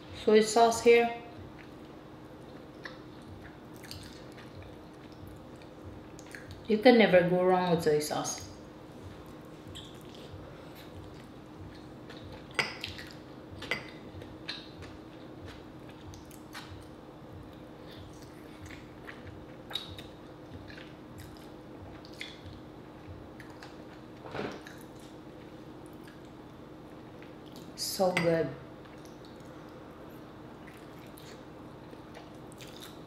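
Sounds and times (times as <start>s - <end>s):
faint steady hum: 0.0s - 33.0s
wet chewing and biting: 18.0s - 22.6s, 32.0s - 33.0s
sharp mouth clicks: 19.7s - 22.4s.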